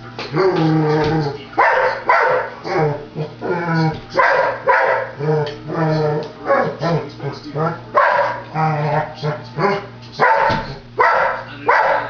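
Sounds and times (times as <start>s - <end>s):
dog barking: 1.6s - 2.6s, 4.2s - 5.2s, 7.9s - 12.0s.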